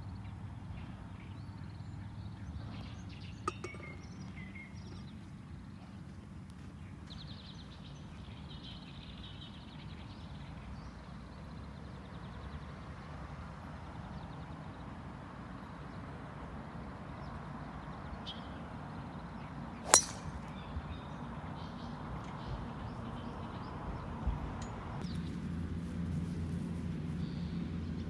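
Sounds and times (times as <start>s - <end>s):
outdoor background noise: 0.0s - 28.0s
golf club striking ball: 19.8s - 20.5s.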